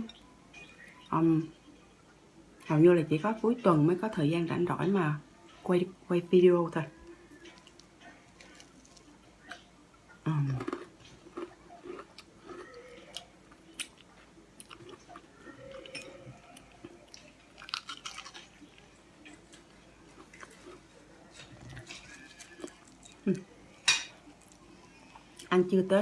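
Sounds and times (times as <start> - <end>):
crunchy food chewing: 7.1 - 9.7, 10.3 - 23.5.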